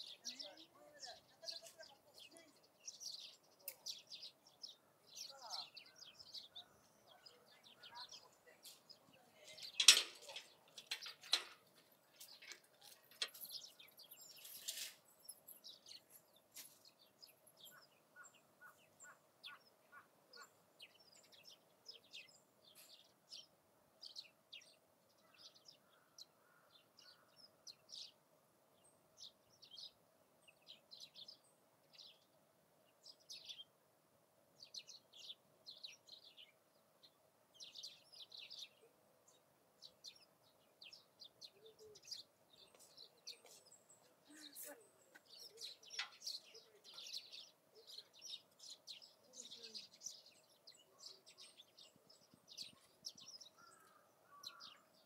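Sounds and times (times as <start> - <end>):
rustle: 0.0 - 19.0
small birds chirping: 0.0 - 55.0.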